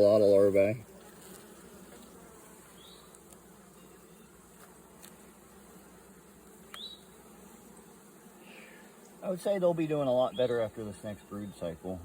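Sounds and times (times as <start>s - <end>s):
honeybees buzzing: 0.0s - 12.0s
faint ticks: 3.0s - 3.5s, 4.6s - 5.2s, 6.6s - 6.9s.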